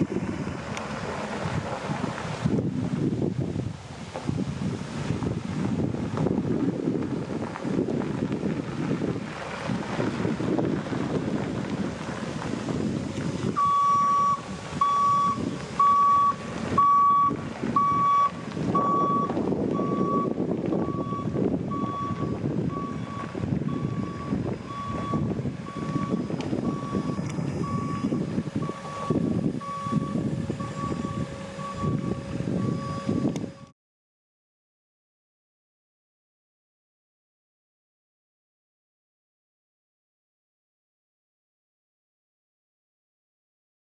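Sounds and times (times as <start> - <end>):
truck backup alarm beeping: 13.5 - 33.7.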